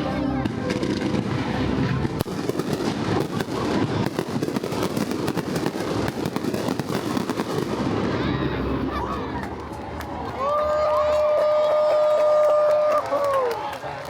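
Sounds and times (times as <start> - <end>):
fireworks bangs and crackles: 0.0 - 10.2.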